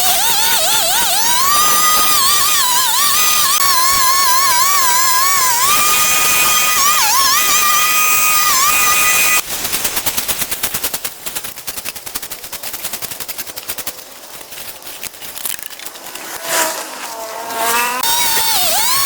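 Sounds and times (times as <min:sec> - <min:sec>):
two-stroke engine idling and revving: 0:15.9 - 0:19.0.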